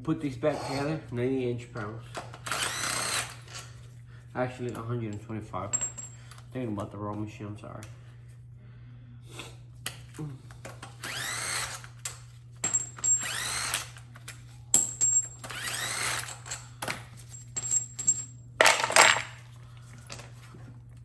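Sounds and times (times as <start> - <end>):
power drill running: 2.4 - 3.6, 11.0 - 11.9, 13.0 - 14.0, 15.4 - 16.5
metal tools clinking: 17.3 - 19.4.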